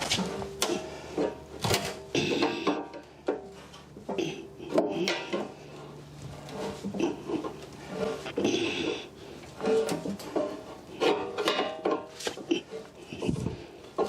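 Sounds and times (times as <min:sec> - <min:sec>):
heavy metal clanking and scraping: 0:00.0 - 0:14.0.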